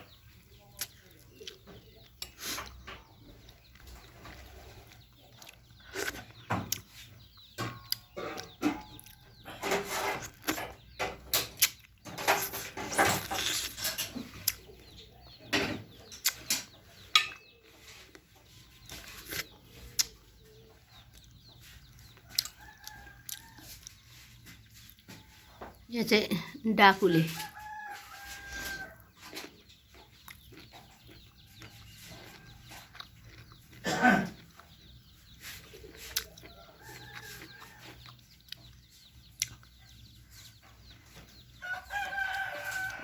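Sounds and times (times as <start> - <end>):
chickens clucking: 0.0 - 43.0.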